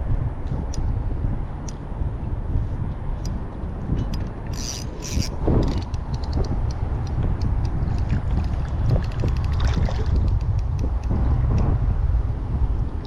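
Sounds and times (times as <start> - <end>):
low wind rumble: 0.0 - 13.0
fishing reel clicking: 4.0 - 8.5.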